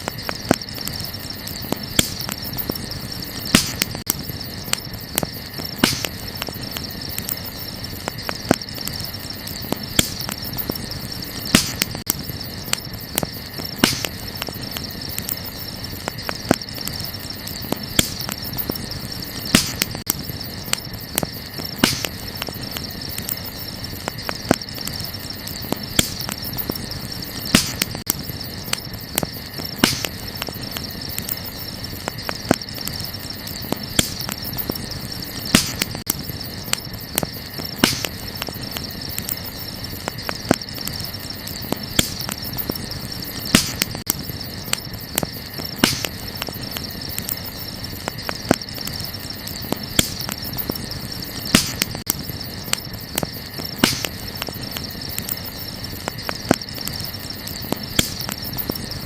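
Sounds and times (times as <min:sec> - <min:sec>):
campfire crackling and popping: 0:00.0 - 0:59.0
night insects chirping: 0:00.0 - 0:59.0.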